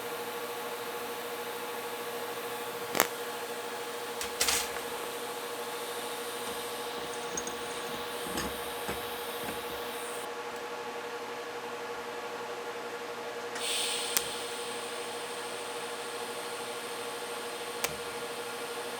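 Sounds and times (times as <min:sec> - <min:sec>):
welding hiss and hum: 0:00.0 - 0:10.3, 0:13.6 - 0:18.9
sharp click: 0:02.9 - 0:03.2, 0:13.6 - 0:18.7.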